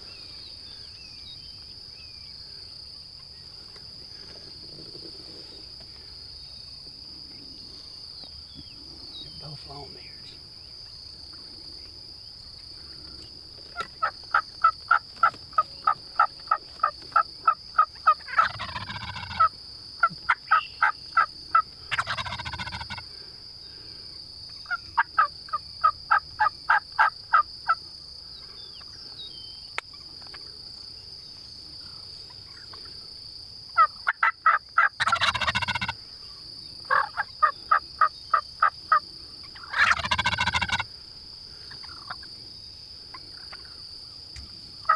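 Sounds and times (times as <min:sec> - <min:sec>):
insect whine: 0:00.0 - 0:44.9
turkeys gobbling: 0:13.8 - 0:23.1, 0:33.8 - 0:36.0, 0:36.9 - 0:38.7, 0:39.5 - 0:40.9, 0:41.7 - 0:42.3, 0:44.4 - 0:44.9
turkey yelping: 0:17.8 - 0:19.5, 0:20.1 - 0:23.0, 0:33.8 - 0:36.0, 0:36.9 - 0:37.5, 0:39.6 - 0:40.8.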